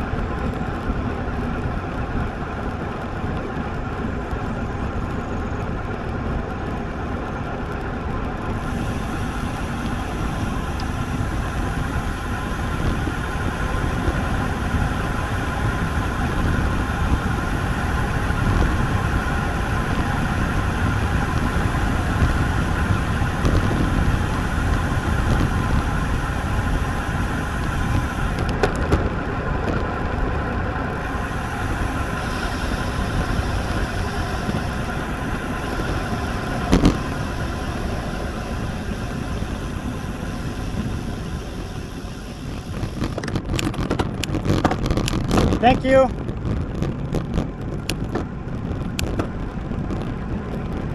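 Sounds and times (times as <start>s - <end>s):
road noise: 0.0s - 50.9s
wind buffeting microphone: 0.0s - 50.9s.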